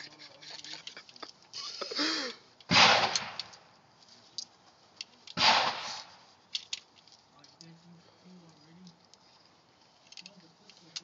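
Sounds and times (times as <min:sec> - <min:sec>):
gunshots with echo: 0:02.7 - 0:03.5, 0:05.4 - 0:06.1.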